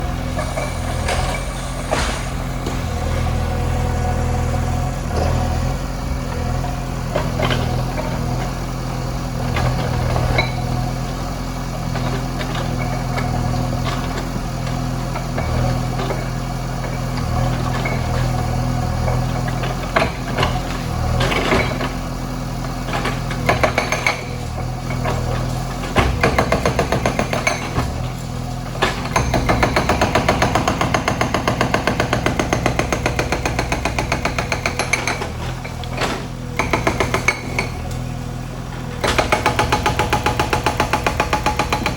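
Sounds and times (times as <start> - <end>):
diesel engine running: 0.0 - 41.9
knocks and clatter: 22.7 - 28.2.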